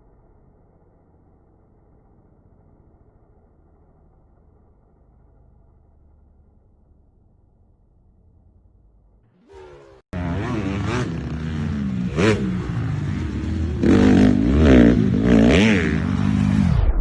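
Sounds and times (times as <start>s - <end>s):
dirt bike engine revving: 9.4s - 16.9s.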